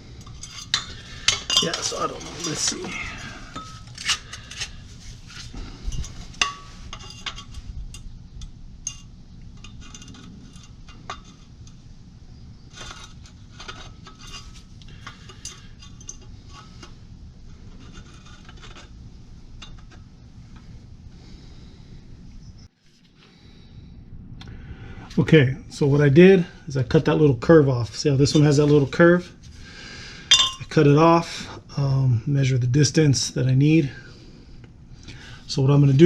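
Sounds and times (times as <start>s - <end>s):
metal pipes clinking and scraping: 0.0s - 11.8s, 12.6s - 20.7s, 27.8s - 29.6s, 30.2s - 31.6s
low hum: 0.0s - 36.0s.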